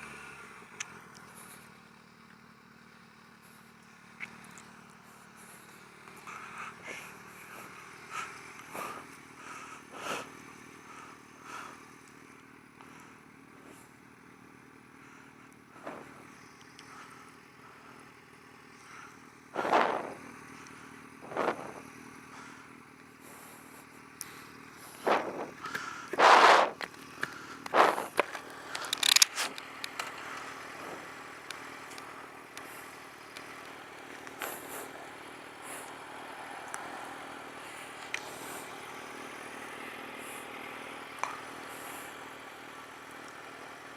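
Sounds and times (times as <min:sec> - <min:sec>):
motorcycle engine idling: 0:00.0 - 0:43.9
short bursts of noise: 0:25.0 - 0:26.8.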